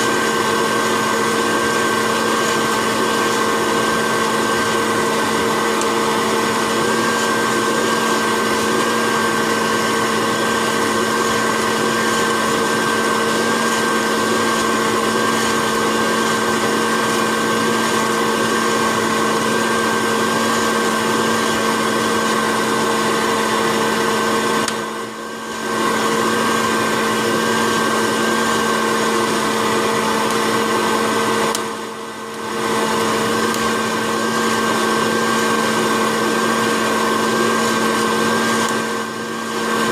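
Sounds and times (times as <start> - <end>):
popcorn popper fan whining: 0.0 - 39.9.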